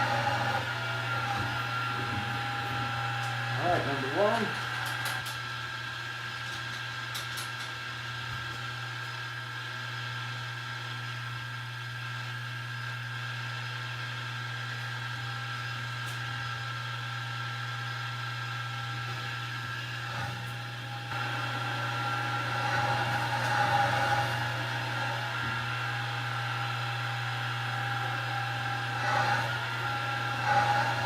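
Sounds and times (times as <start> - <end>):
milling machine drilling steel: 0.0 - 7.5, 20.3 - 31.0.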